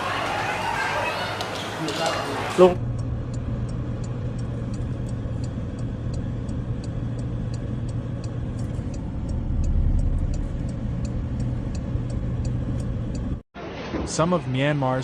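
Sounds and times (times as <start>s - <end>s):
vehicle engine humming: 0.0s - 13.4s
low rumble: 2.8s - 13.4s
regular ticking: 2.8s - 13.4s.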